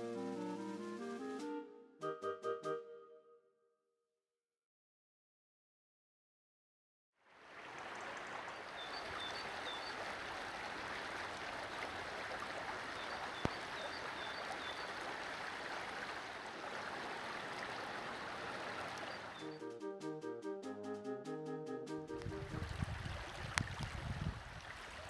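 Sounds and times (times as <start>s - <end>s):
stream flowing: 7.3s - 19.6s, 22.2s - 25.0s
faint bird chirps: 12.9s - 15.1s.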